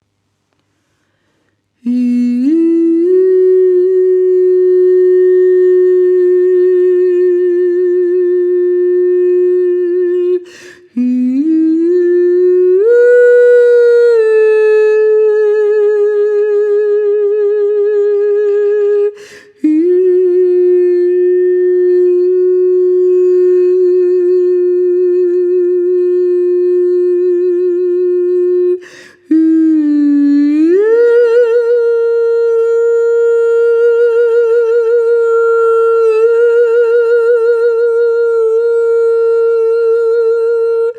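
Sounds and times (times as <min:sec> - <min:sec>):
person breathing in: 0:00.7 - 0:01.7, 0:10.4 - 0:11.0, 0:19.1 - 0:19.6, 0:28.8 - 0:29.3
person humming with vibrato: 0:01.8 - 0:40.9.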